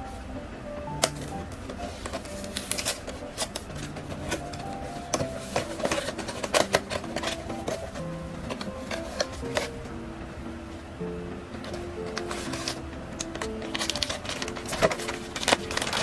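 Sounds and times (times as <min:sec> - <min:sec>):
background music melody: 0:00.0 - 0:16.0
packaging clicks and rustles: 0:00.9 - 0:10.0, 0:11.6 - 0:16.0.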